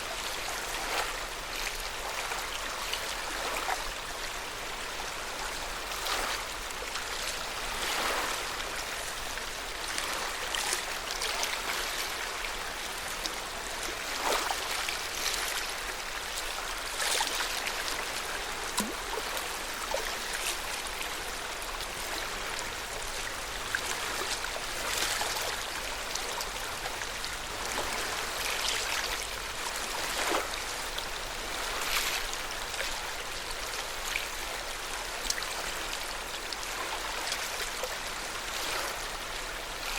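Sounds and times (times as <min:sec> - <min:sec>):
lake water lapping at shore: 0:00.1 - 0:04.0, 0:05.4 - 0:39.9.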